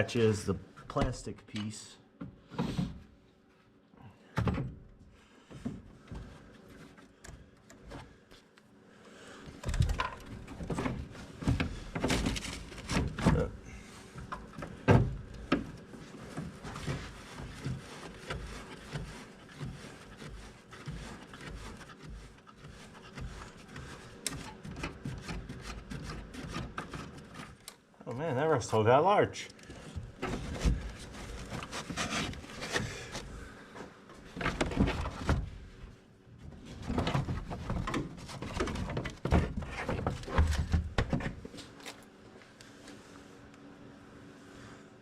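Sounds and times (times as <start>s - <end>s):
plastic panel rubbing and knocking: 14.5s - 27.6s, 36.6s - 41.4s.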